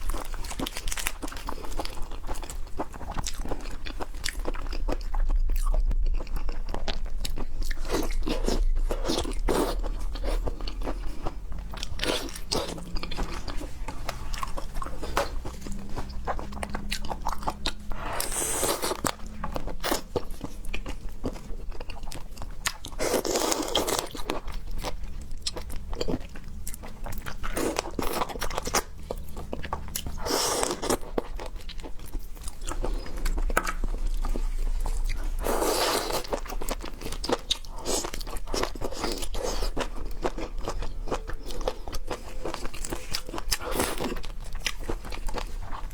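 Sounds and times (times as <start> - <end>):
low steady hum: 0.0 - 45.9
wet chewing and crunching: 0.0 - 45.9.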